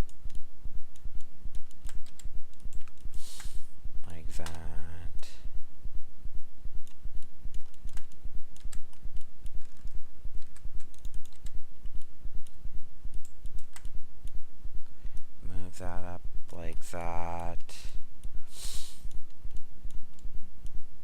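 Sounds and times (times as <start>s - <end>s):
keyboard and mouse clicks: 0.0s - 3.5s, 4.3s - 5.3s, 6.8s - 14.4s, 19.0s - 20.8s
steady low hum: 0.0s - 21.0s.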